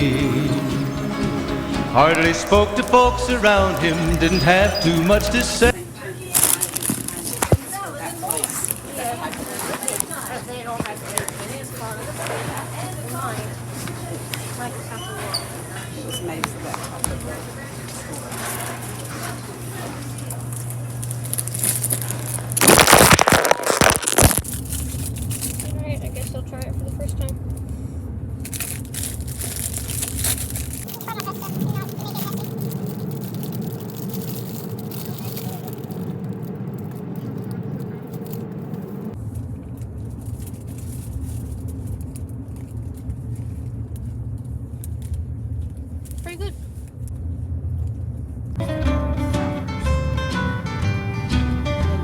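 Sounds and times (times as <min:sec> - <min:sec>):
plastic wrapper crinkling torn open: 0:06.4 - 0:07.4, 0:21.0 - 0:26.4, 0:28.4 - 0:38.5.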